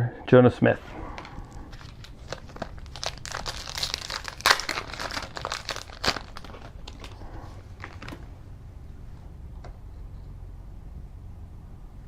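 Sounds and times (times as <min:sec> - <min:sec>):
wrapper crinkling: 0:01.0 - 0:08.4
card pack wrapper tearing: 0:01.2 - 0:08.2.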